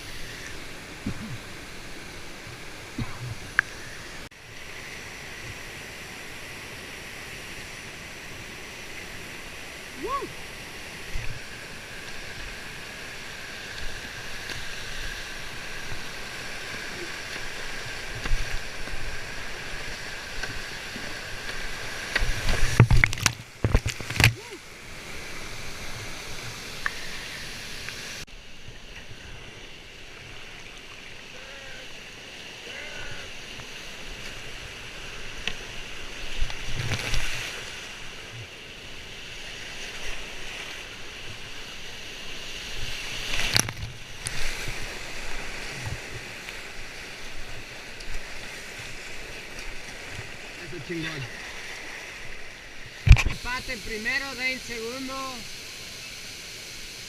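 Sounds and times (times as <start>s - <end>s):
whitewater rushing: 0.0s - 28.7s, 29.3s - 38.3s, 39.7s - 57.0s
loud thumps and splashes: 22.2s - 24.4s.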